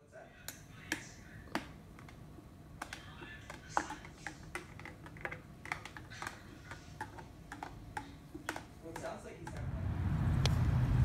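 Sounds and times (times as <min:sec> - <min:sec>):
light irregular clicks and taps: 0:02.8 - 0:09.7.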